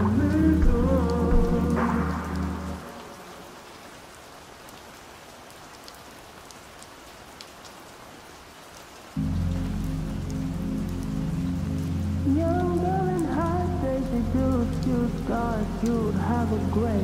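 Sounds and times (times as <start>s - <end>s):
muffled bass-heavy song: 0.0s - 3.0s, 9.2s - 17.0s
steady rain falling: 0.0s - 17.0s.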